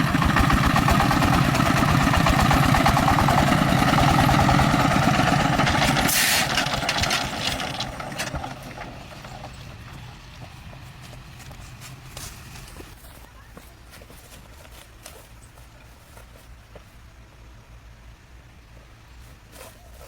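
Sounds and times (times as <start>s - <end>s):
engine chugging: 0.0s - 14.3s.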